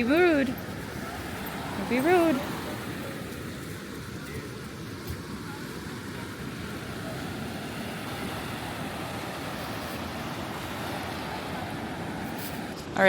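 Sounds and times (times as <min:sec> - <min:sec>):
ocean surf rushing: 0:00.0 - 0:13.0.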